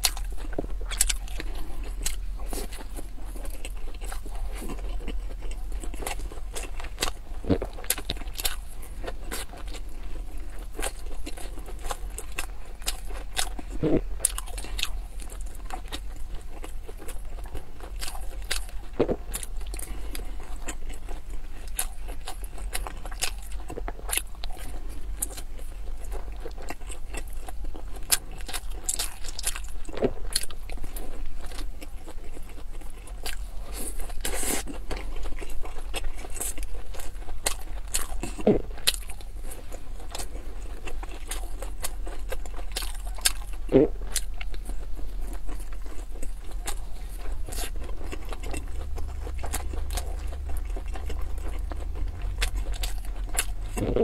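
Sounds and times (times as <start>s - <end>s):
chewing wet mouth sounds: 0.0s - 54.0s
low steady hum: 0.0s - 54.0s.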